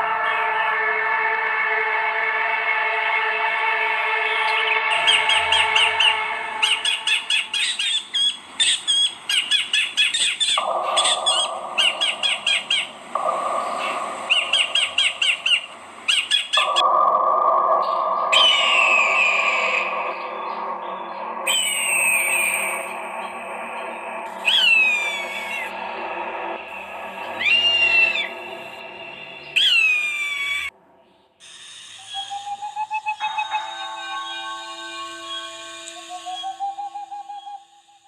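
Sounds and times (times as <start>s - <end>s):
songbird chirping: 4.2s - 16.9s, 17.8s - 31.4s, 32.0s - 37.9s
sweeping falling bird calls: 4.2s - 38.0s.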